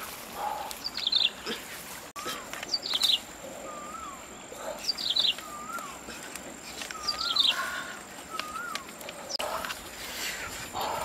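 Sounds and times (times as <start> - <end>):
bird whistling call: 2.2 - 4.2, 4.9 - 6.0, 6.9 - 7.7, 8.3 - 9.4.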